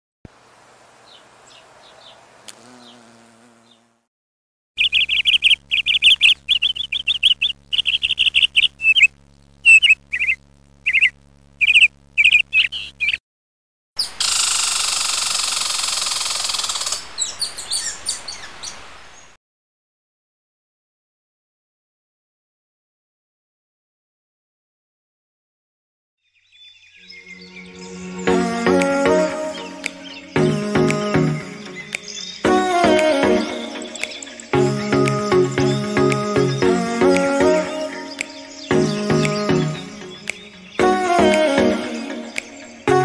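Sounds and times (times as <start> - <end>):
small bird chirping: 1.0 - 4.0, 4.8 - 13.2, 15.6 - 19.4, 38.1 - 40.9
low steady hum: 4.8 - 13.0.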